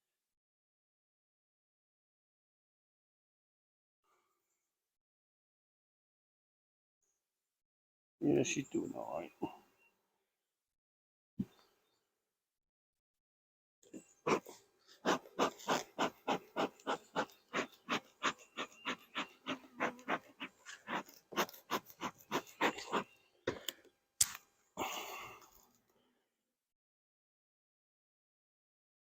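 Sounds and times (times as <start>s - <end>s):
rapid rhythmic panting: 14.3s - 23.2s.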